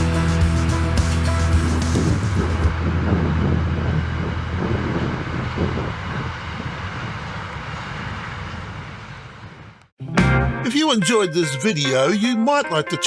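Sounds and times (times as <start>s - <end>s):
train rumbling past: 0.0s - 9.8s.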